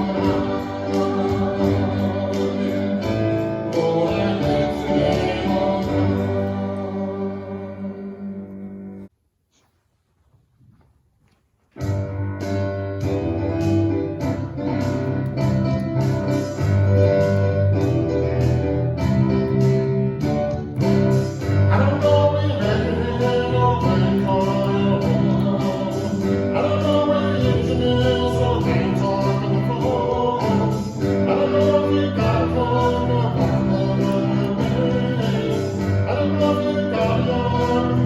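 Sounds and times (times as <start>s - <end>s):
children's song singing: 0.0s - 8.6s, 21.7s - 38.0s
guitar: 0.0s - 9.1s, 11.8s - 38.0s.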